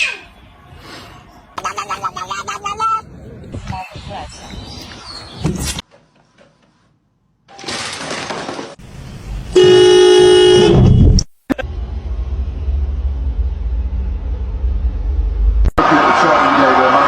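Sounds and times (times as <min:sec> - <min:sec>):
horn honking: 0:09.5 - 0:11.2
low rumble: 0:10.8 - 0:15.9.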